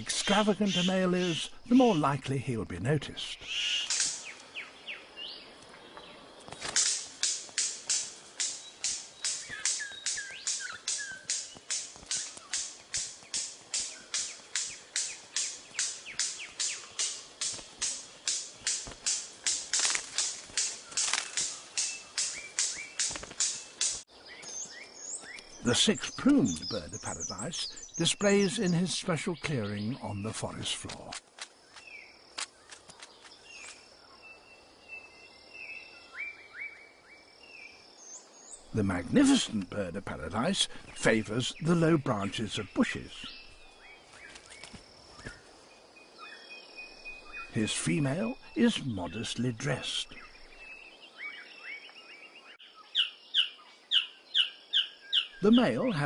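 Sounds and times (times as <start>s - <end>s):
faint insect hiss: 0.0s - 56.0s
bird whistled calls: 3.4s - 4.4s, 9.2s - 12.6s
whistled bird calls: 3.4s - 5.4s, 8.5s - 17.2s, 46.1s - 56.0s
sharp clicks: 3.8s - 4.5s, 6.5s - 24.0s.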